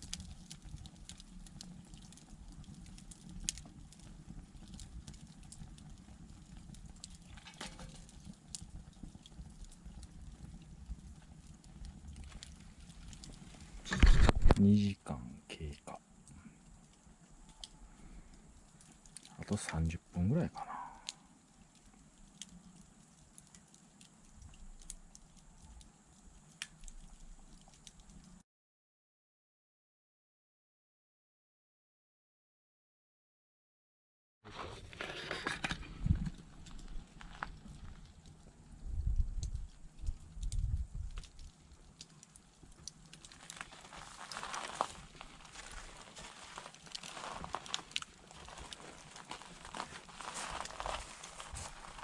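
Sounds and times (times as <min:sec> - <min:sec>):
low steady background noise: 0:00.0 - 0:28.4
wood candle crackling and popping: 0:00.0 - 0:28.4, 0:34.5 - 0:52.0.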